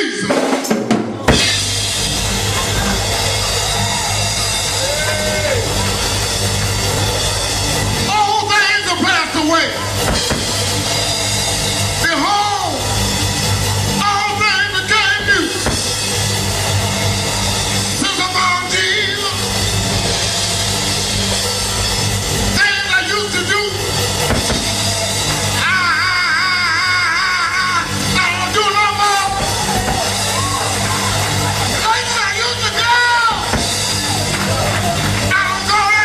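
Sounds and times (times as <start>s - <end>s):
band with drums and bass: 0.0s - 36.0s.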